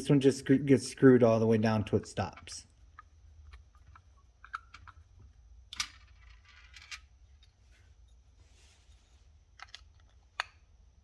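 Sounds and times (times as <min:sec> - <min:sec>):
metal parts clicking and tapping: 0:02.3 - 0:05.1, 0:05.7 - 0:07.6.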